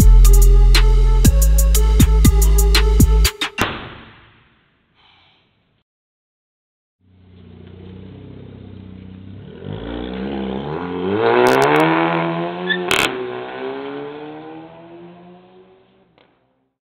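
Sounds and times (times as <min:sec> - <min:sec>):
car engine revving: 0:07.1 - 0:16.2.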